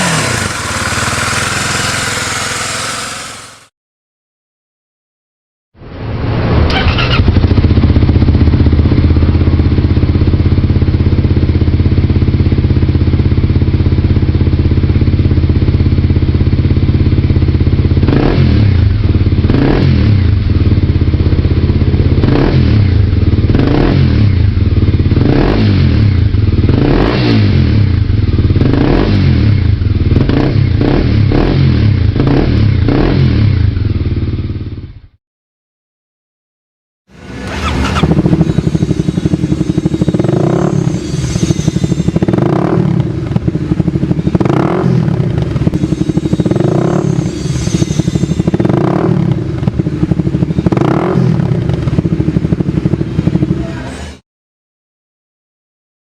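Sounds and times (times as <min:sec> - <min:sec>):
engine running and surging: 0:00.0 - 0:03.7, 0:06.2 - 0:34.8, 0:37.1 - 0:54.2.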